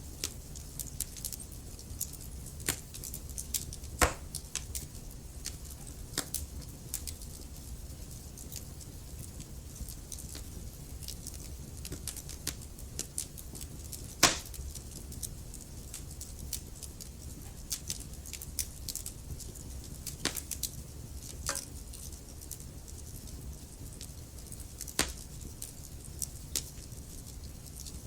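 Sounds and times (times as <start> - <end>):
logs crackling in a fireplace: 0.0 - 28.0
low fire rumble: 0.0 - 28.0
fire pop: 4.0 - 4.8, 11.8 - 14.6, 20.1 - 20.7, 21.3 - 21.9, 24.8 - 25.3.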